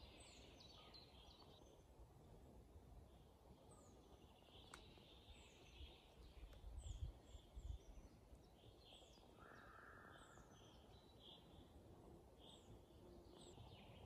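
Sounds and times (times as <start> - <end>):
soft bird calls: 0.0 - 1.9, 3.1 - 11.7.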